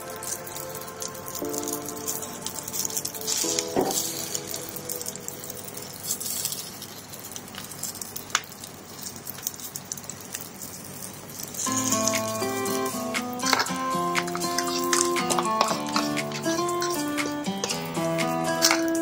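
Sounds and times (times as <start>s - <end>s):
soft background music: 0.0s - 7.0s, 11.7s - 19.0s
batter sizzling in hot oil: 0.0s - 19.0s
metal spatula clinking on pan: 13.4s - 18.0s.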